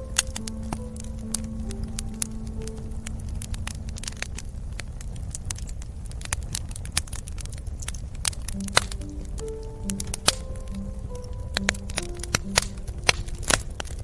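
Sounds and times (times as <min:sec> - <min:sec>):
background music: 0:00.0 - 0:04.8, 0:08.2 - 0:14.0
wood fire crackling: 0:00.0 - 0:14.0.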